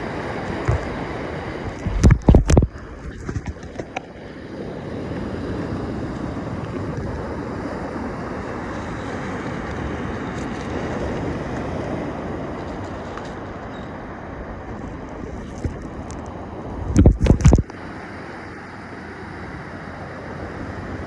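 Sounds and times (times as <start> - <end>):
wind on microphone: 0.0 - 4.1, 14.4 - 17.7
surf washing onto beach: 0.0 - 21.0.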